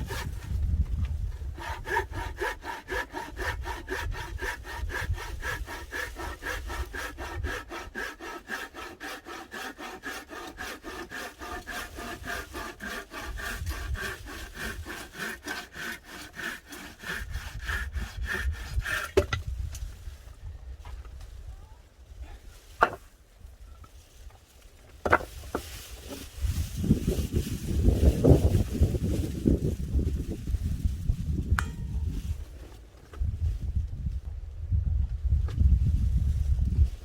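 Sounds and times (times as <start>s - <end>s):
hand saw cutting firewood: 0.0s - 19.9s, 22.8s - 23.1s, 25.0s - 32.7s.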